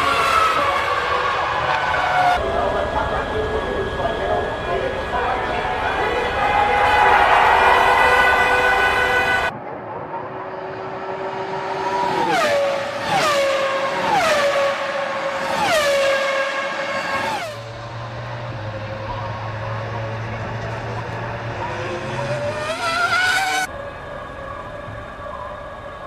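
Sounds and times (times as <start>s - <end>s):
racing cars passing at high revs: 10.1s - 23.8s
low steady engine hum: 17.6s - 22.5s.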